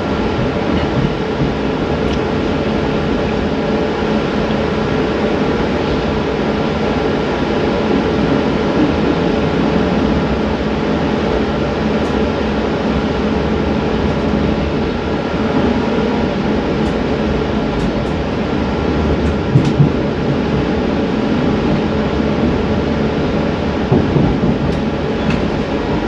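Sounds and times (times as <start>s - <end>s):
train car rumble: 0.0s - 26.0s.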